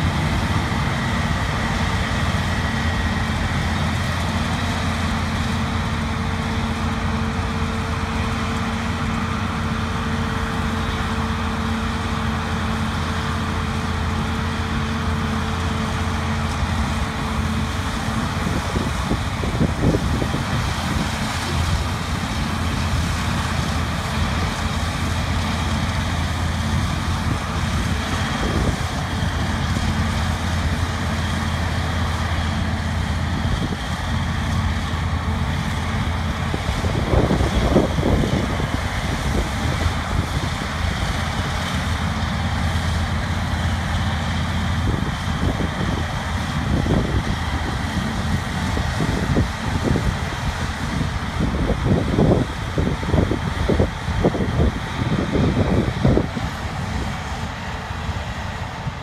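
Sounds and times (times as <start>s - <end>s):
diesel engines droning: 0.0s - 59.0s.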